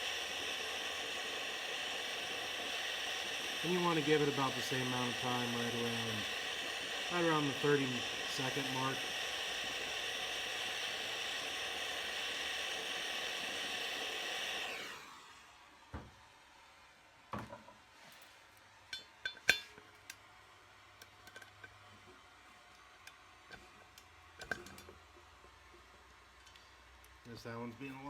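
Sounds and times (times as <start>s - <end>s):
gas torch hissing: 0.0s - 16.2s.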